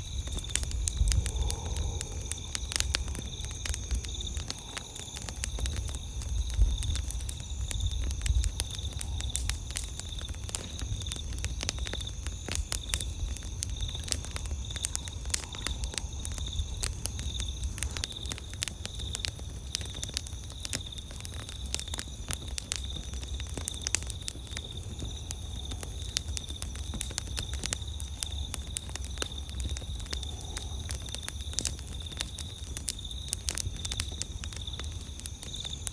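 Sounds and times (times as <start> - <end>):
campfire crackling and popping: 0.0 - 35.9
high insect trill: 0.0 - 35.9.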